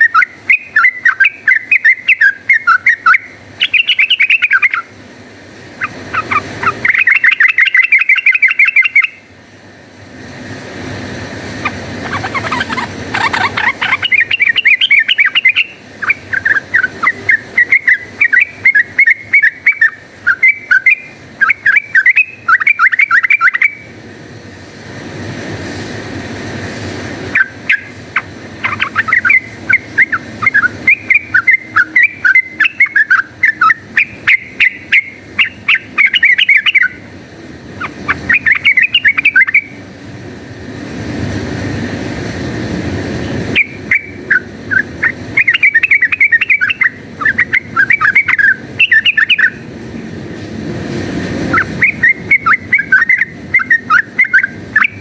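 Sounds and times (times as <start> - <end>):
bulbul chattering song: 0.0 - 5.0, 5.7 - 9.3, 11.6 - 23.8, 27.3 - 39.8, 43.5 - 49.7, 51.5 - 55.0.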